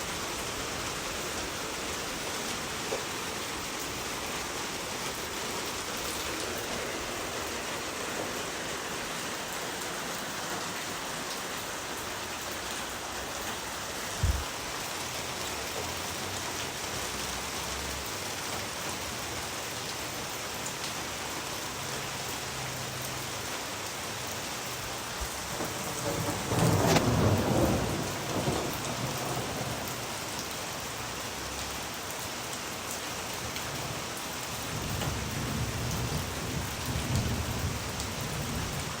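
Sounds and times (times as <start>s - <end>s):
heavy rain falling: 0.0s - 39.0s
brief low thump: 14.2s - 14.5s
rumble of thunder: 25.2s - 30.2s.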